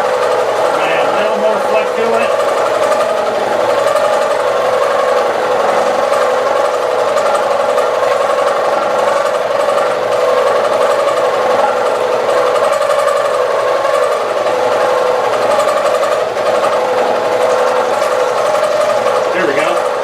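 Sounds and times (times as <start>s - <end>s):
coolant running: 0.0s - 20.0s
milling machine cutting: 0.0s - 20.0s.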